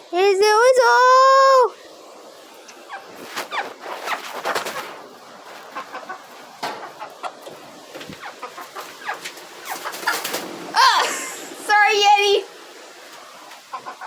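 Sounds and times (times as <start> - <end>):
hens clucking and squawking: 2.2 - 11.7, 12.5 - 14.0.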